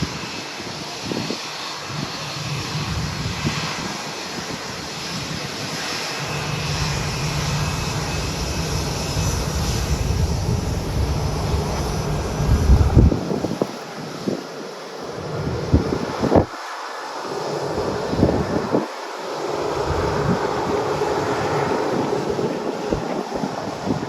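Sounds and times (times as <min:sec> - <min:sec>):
jet engines roaring: 0:00.0 - 0:24.0
deep rumble: 0:06.2 - 0:13.2.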